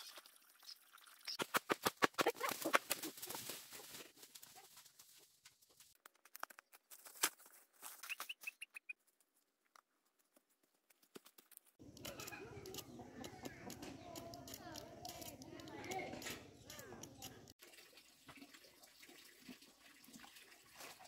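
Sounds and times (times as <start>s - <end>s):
bird chirping: 8.0s - 9.0s
sharp clicks and crackles: 9.0s - 17.6s.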